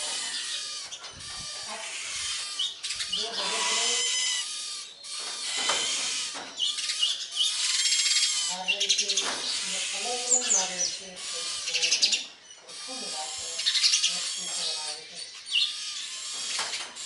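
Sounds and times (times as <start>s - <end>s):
lower animal calls: 0.0s - 8.7s
small birds chirping: 0.0s - 17.0s.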